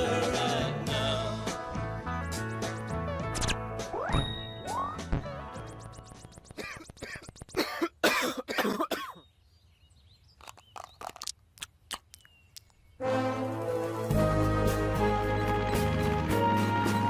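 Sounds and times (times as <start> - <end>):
cartoon character coughing: 6.6 - 9.2.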